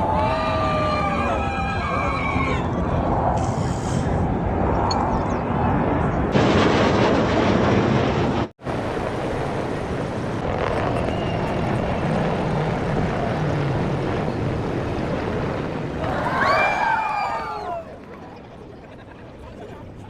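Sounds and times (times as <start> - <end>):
military aircraft flying over: 4.0 - 16.6.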